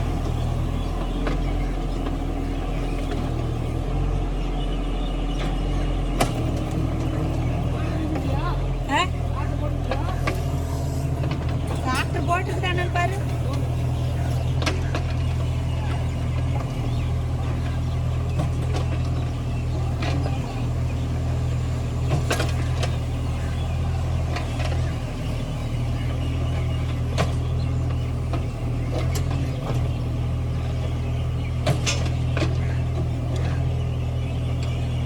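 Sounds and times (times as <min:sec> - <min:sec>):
excavator engine running: 0:00.0 - 0:35.0.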